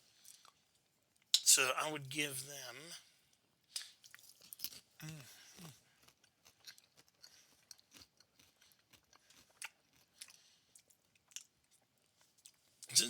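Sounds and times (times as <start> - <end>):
crunchy chewing: 3.8 - 12.7.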